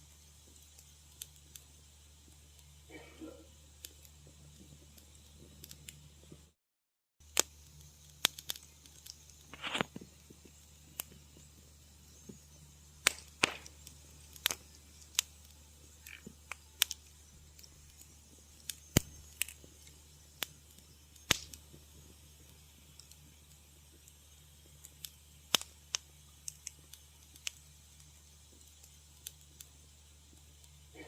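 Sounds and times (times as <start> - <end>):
low steady hum: 0.0 - 6.6, 7.2 - 31.0
wood fire crackling: 0.0 - 6.6, 7.2 - 31.0
hissing sputter: 7.3 - 31.0.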